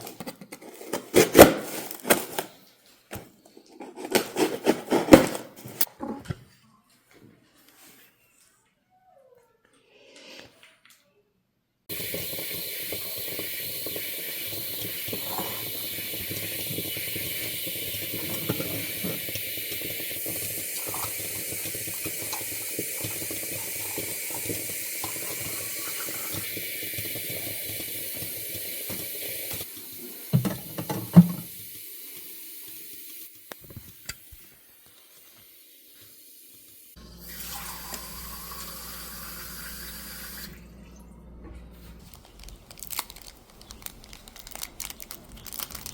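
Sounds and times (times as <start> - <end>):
water running from tap: 11.9 - 40.7.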